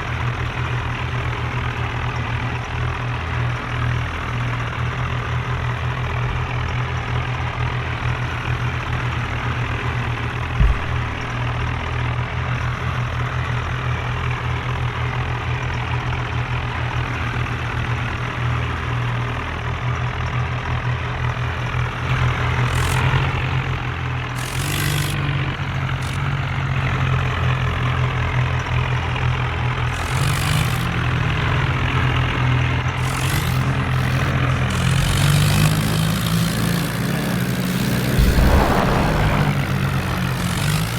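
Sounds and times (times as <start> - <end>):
tractor diesel engine running: 0.0 - 40.9
short thump: 10.6 - 11.8, 38.2 - 39.9
brief hissing bursts: 38.2 - 40.0.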